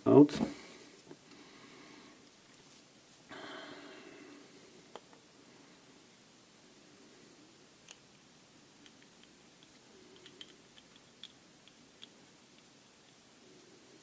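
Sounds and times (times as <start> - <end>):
faint sharp clicks of small parts: 7.8 - 8.2, 8.8 - 13.7.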